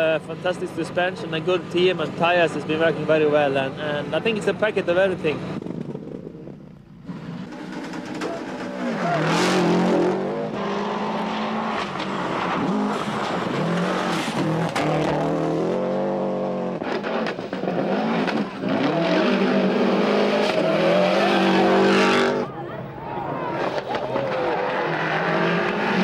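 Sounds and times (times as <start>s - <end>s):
rally car engine revving: 5.1s - 22.5s, 23.2s - 26.0s.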